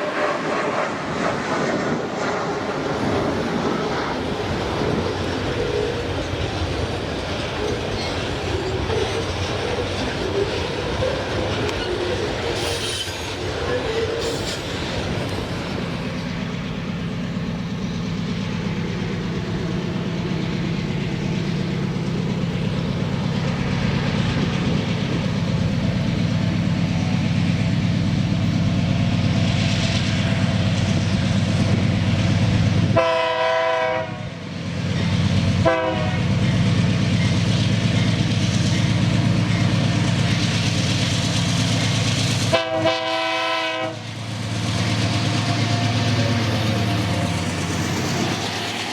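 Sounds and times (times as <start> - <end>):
diesel freight train running: 0.0 - 48.9
train horn blasts: 32.9 - 34.4, 35.6 - 36.3, 42.5 - 44.1.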